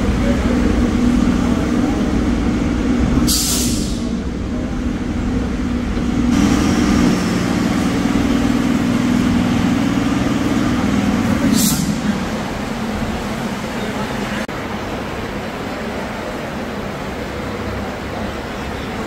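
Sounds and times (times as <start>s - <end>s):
electric train rumble and hum: 0.0s - 19.0s
short sharp hiss: 3.3s - 4.1s.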